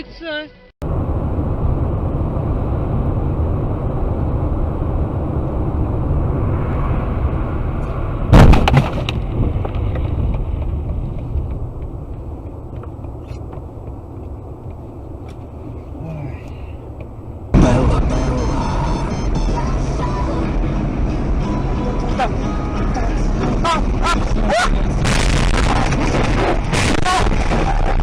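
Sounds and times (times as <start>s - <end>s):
car road and engine rumble: 0.0s - 28.0s
loud collision bang: 8.2s - 9.3s, 17.5s - 18.8s, 25.0s - 27.8s.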